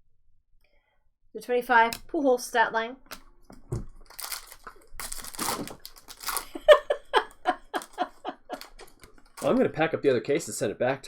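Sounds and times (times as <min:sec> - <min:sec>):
wrappers crinkling and tearing: 0:03.9 - 0:06.8, 0:07.7 - 0:09.7.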